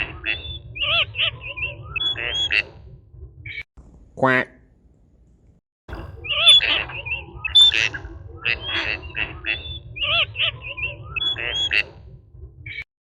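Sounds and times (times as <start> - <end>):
bird chirping and squawking: 0.0 - 2.7, 5.9 - 11.9
low background rumble: 0.0 - 12.8.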